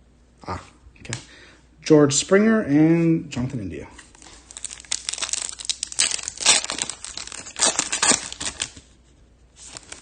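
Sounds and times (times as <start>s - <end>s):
wrapper crinkling and tearing: 4.1s - 8.9s, 9.6s - 10.0s.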